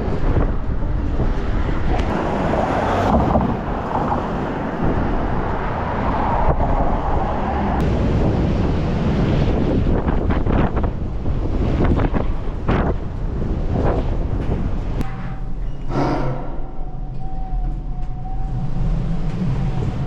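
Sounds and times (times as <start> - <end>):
wind buffeting microphone: 0.0 - 15.8.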